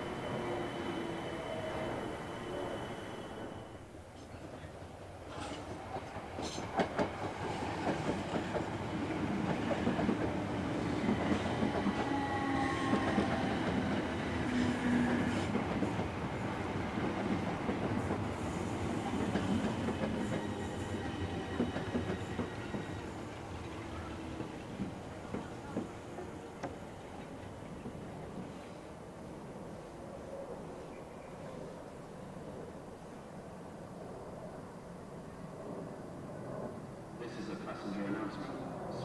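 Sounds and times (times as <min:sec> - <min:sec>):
train wheels clattering on rails: 0:04.4 - 0:28.7.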